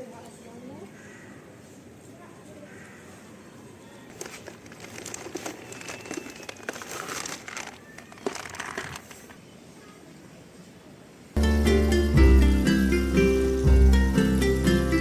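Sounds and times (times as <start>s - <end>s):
plastic packaging crinkling: 4.1s - 9.4s.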